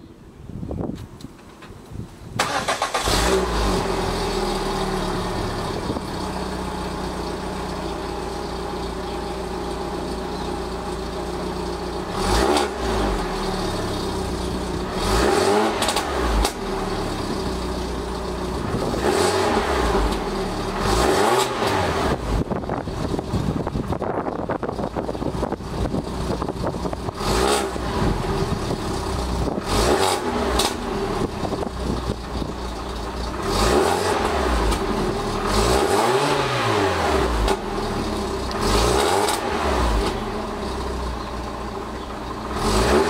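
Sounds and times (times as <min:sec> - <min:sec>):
car engine starting and idling: 0:01.2 - 0:43.0
engine revving: 0:02.4 - 0:06.6, 0:12.0 - 0:17.6, 0:18.5 - 0:23.4, 0:26.9 - 0:32.2, 0:33.3 - 0:40.9, 0:42.4 - 0:43.0.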